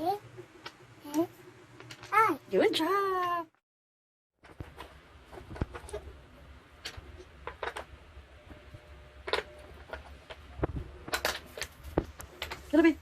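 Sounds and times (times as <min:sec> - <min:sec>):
low steady hum: 0:04.4 - 0:13.0.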